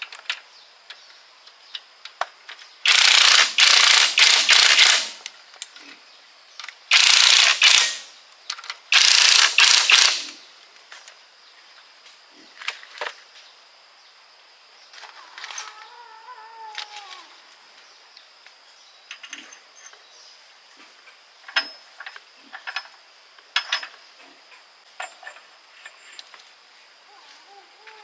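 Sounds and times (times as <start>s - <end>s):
compressed-air tool bursts: 2.8s - 5.3s, 6.9s - 8.1s, 8.9s - 10.4s
metal parts clicking: 2.9s - 5.3s, 6.9s - 10.4s
cat meowing faintly: 15.1s - 17.5s.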